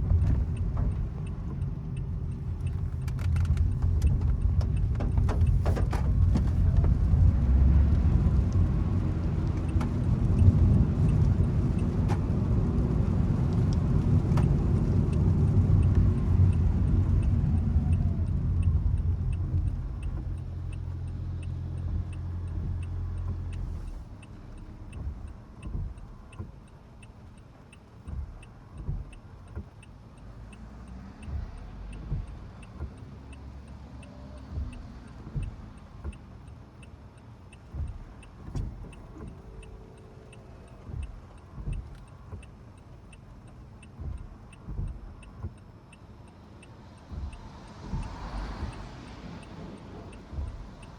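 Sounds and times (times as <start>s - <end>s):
car engine and road rumble: 0.0s - 50.9s
faint regular ticking: 0.0s - 50.9s.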